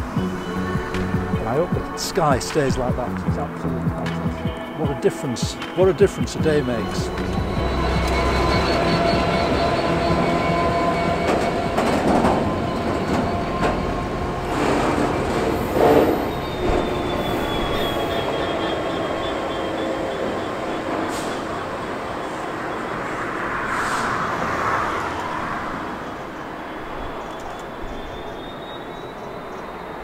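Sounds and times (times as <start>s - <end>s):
train wagons rumbling on rails: 0.0s - 30.0s
faint high wheel squeal: 6.8s - 23.0s, 26.6s - 30.0s.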